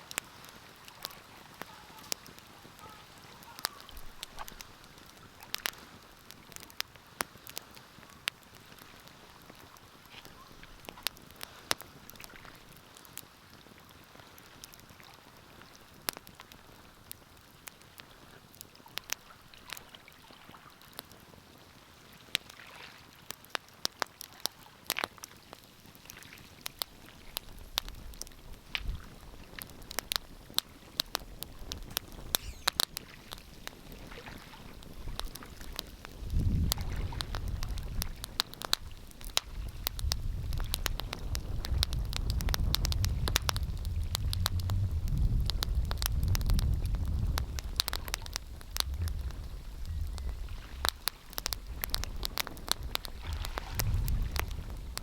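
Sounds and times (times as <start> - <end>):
wood fire crackling: 0.0 - 19.8, 22.3 - 55.0
low rumble: 43.0 - 55.0.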